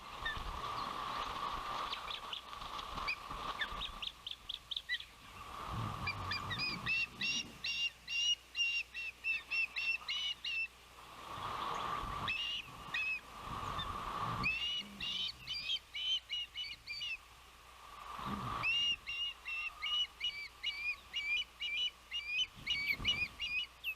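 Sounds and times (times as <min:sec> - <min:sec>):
ospreys chirping: 0:00.2 - 0:10.7, 0:11.6 - 0:17.3, 0:18.2 - 0:23.9
wind buffeting microphone: 0:05.4 - 0:07.6.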